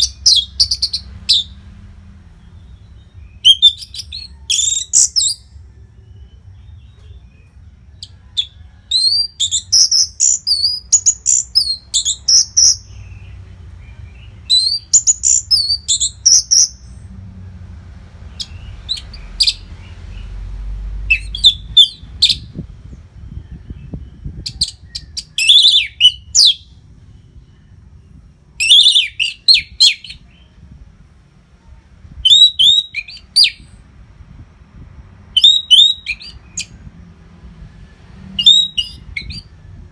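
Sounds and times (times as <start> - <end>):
faint low rumble: 0.0 - 25.4, 26.2 - 28.6, 29.4 - 35.4.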